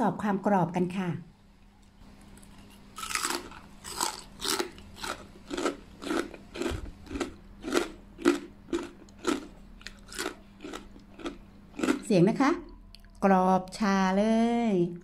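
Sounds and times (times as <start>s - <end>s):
crisp crunches of chewing: 2.2s - 12.1s.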